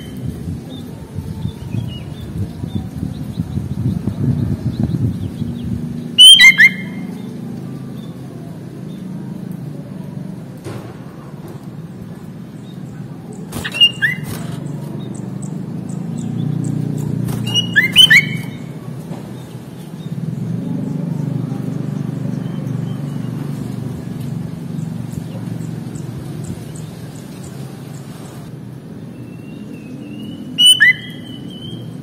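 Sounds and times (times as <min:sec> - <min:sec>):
steady low rumble: 0:00.0 - 0:06.2
bulbul calling: 0:06.2 - 0:07.3, 0:13.3 - 0:18.8, 0:30.1 - 0:32.0.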